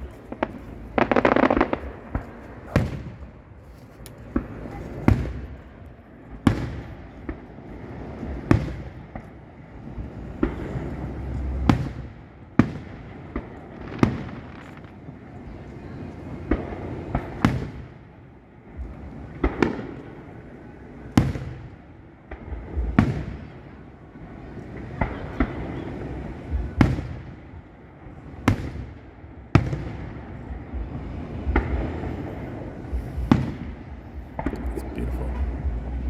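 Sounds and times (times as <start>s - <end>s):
fireworks shells bursting: 0.0s - 2.8s
low rumble: 0.0s - 5.8s, 30.4s - 36.0s.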